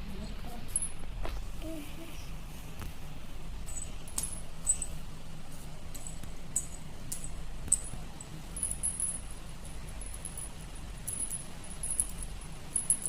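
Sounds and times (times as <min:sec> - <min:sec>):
low background hum: 0:00.0 - 0:13.0
small bells jingling: 0:00.6 - 0:01.1, 0:03.6 - 0:05.0, 0:05.9 - 0:13.0.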